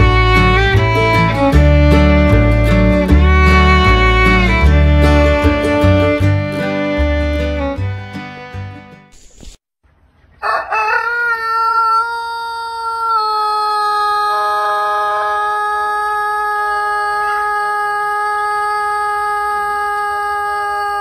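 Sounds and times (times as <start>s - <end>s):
rooster crowing: 10.4s - 21.0s.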